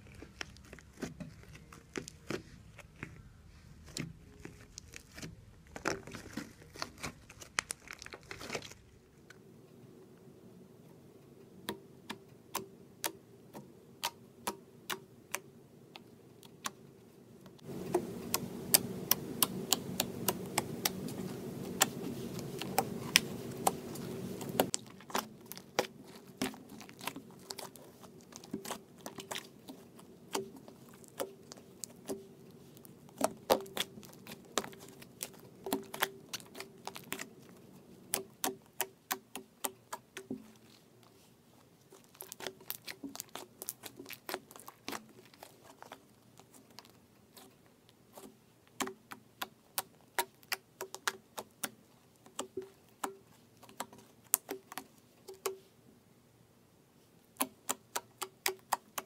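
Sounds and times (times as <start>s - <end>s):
steady background noise: 0.0s - 48.2s
slime clicking and popping: 17.8s - 40.8s, 41.9s - 47.4s, 48.1s - 55.6s, 57.4s - 59.0s.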